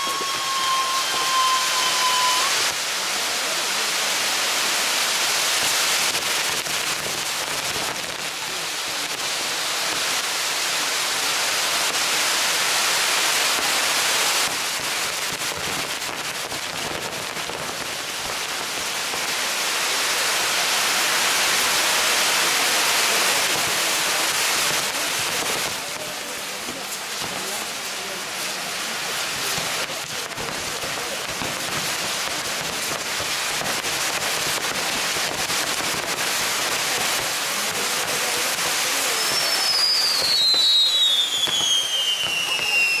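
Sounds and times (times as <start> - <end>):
firework whistling tone: 0.0 - 7.3, 38.4 - 43.0
firework wheels hissing: 0.0 - 43.0.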